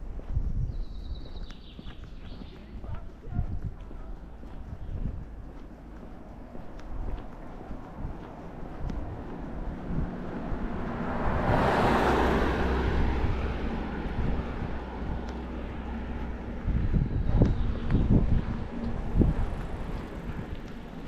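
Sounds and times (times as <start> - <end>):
wind buffeting microphone: 0.0 - 21.0
vehicle driving past: 6.4 - 21.0.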